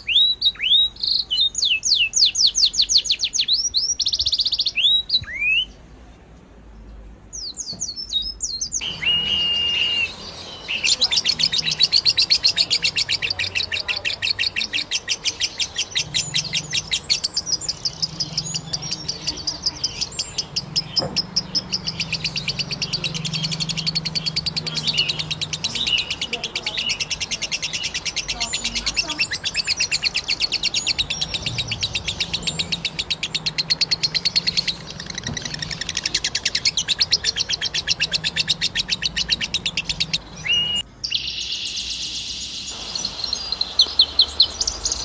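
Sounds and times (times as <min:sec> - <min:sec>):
small birds chirping in trills: 0:00.0 - 0:45.0
held bird whistle: 0:07.4 - 0:26.2, 0:28.6 - 0:45.0.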